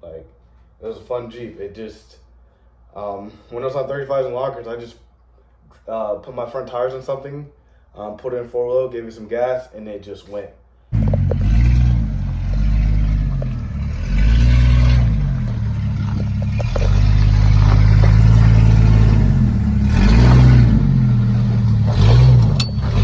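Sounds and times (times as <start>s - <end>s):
car engine revving: 11.0s - 23.0s.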